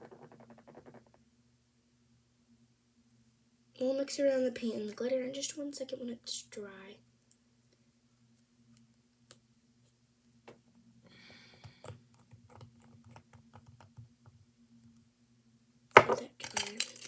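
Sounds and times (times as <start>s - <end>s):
faint steady hum: 0.0s - 17.0s
small objects clicking and tapping: 15.9s - 17.0s.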